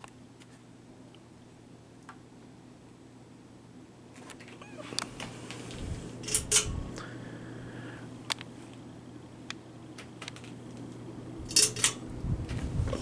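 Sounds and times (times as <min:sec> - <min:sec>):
ceiling fan hum and whoosh: 0:00.0 - 0:13.0
sharp clicks of fan: 0:04.3 - 0:07.2, 0:08.2 - 0:13.0.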